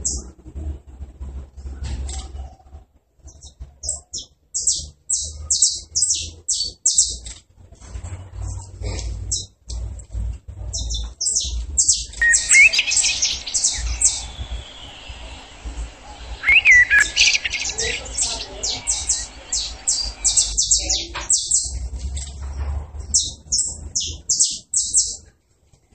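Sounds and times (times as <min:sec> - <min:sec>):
songbirds chirping: 0:00.0 - 0:25.9
steady low hum: 0:07.6 - 0:24.3
whistled bird call: 0:11.3 - 0:21.7.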